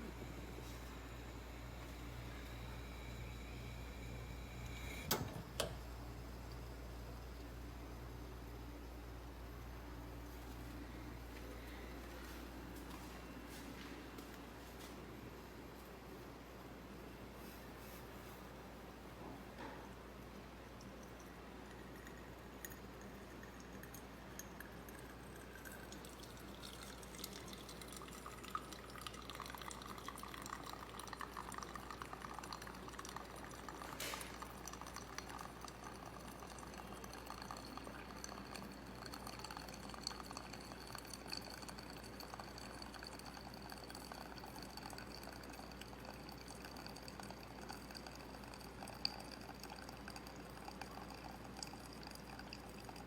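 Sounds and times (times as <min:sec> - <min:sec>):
liquid pouring into container: 0:20.7 - 0:53.0.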